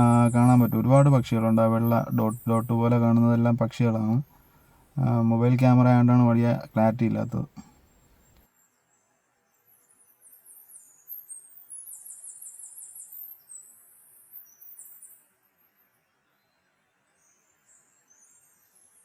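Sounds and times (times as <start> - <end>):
high-pitched chirping: 0.0 - 4.3.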